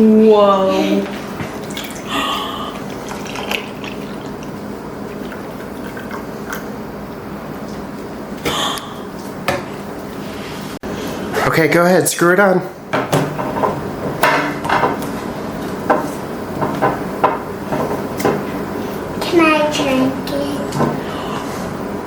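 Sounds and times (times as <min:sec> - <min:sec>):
dripping: 0:00.9 - 0:06.7.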